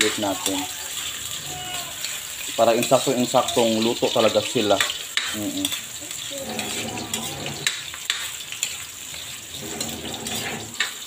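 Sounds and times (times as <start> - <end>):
food sizzling in hot oil: 0.0 - 11.0
metal ladle scraping a wok: 4.8 - 11.0.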